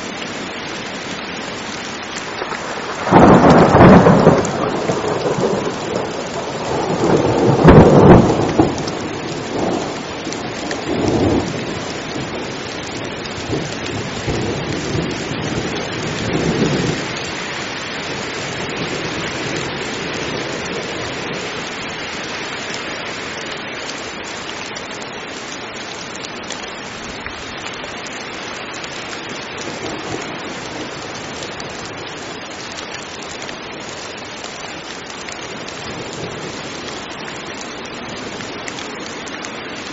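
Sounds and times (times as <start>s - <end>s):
heavy rain: 0.0s - 39.9s
rolling thunder: 2.6s - 10.0s.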